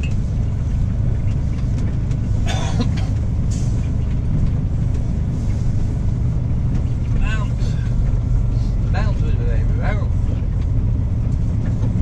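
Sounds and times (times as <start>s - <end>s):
truck diesel engine droning: 0.0s - 12.0s.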